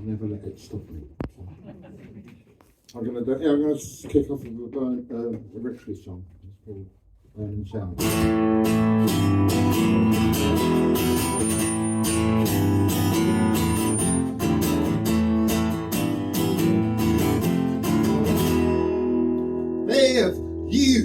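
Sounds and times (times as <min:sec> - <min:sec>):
acoustic guitar strumming: 0:08.0 - 0:21.0.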